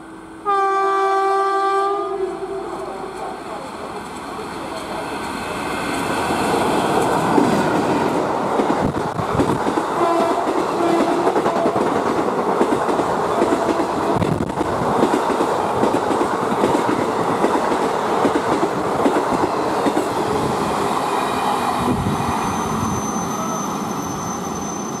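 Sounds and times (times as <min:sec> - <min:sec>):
train wheels clattering over rails: 0:03.6 - 0:22.1.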